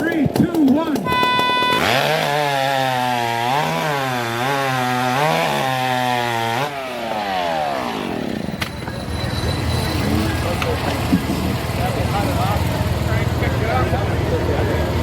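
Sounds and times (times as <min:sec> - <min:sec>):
short beep: 0:01.0 - 0:02.0
chainsaw engine revving: 0:01.0 - 0:08.6.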